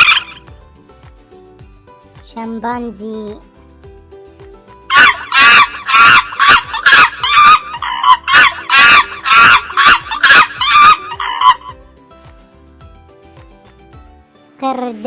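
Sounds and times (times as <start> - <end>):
chimpanzee hooting and screeching: 0.0 - 0.5, 4.9 - 11.8.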